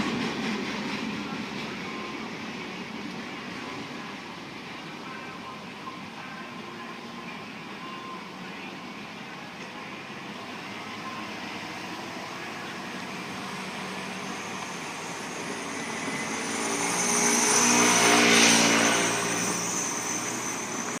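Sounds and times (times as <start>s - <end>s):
vehicle engine hum: 8.6s - 21.0s.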